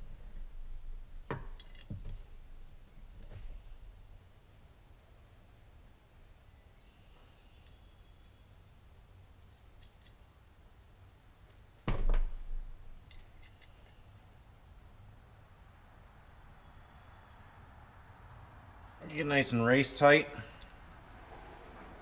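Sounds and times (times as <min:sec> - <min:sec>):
small metal parts clinking: 0:01.6 - 0:02.0, 0:09.4 - 0:10.2, 0:13.0 - 0:14.0
loud thump: 0:11.8 - 0:12.7.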